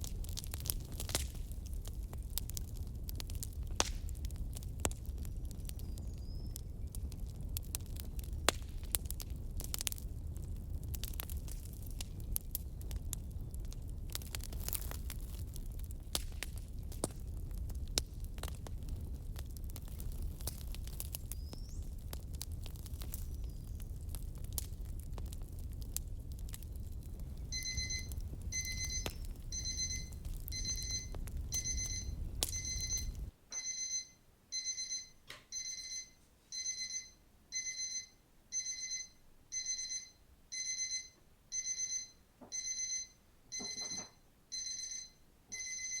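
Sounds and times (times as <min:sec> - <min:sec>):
fireplace crackling: 0:00.0 - 0:46.0
electronic timer alarm beeping: 0:27.5 - 0:46.0.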